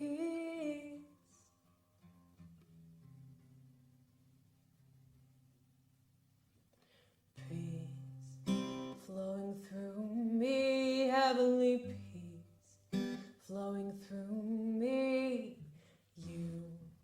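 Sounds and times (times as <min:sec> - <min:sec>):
woman singing: 0:00.0 - 0:01.3, 0:07.4 - 0:17.0
acoustic guitar strummed: 0:07.8 - 0:09.0, 0:12.8 - 0:13.4.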